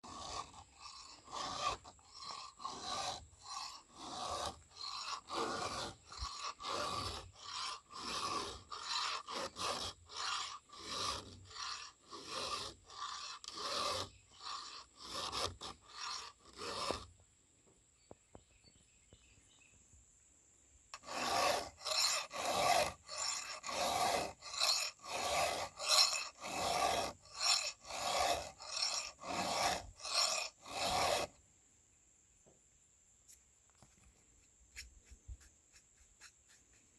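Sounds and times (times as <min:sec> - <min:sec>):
hand file rasping on chainsaw chain: 0:00.0 - 0:17.2, 0:21.0 - 0:31.4.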